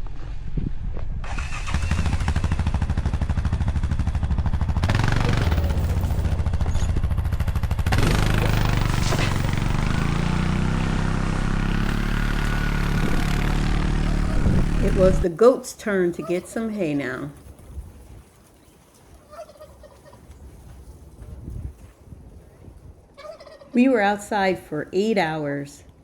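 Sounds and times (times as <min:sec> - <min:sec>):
atv engine under load: 0:01.2 - 0:17.4.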